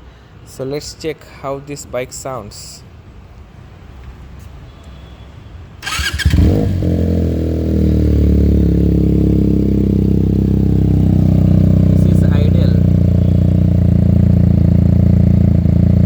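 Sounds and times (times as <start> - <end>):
motorcycle starter cranking: 5.8 - 7.5
motorcycle engine idling: 5.8 - 16.0.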